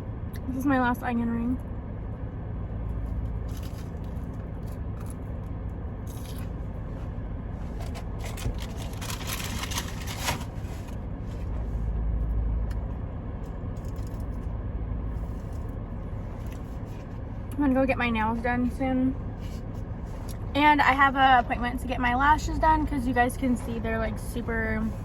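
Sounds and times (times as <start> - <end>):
car interior hum: 0.0 - 25.0
crunching and chewing food: 2.8 - 11.0, 13.4 - 17.2
food wrapper crackling: 3.4 - 5.3, 7.8 - 10.6.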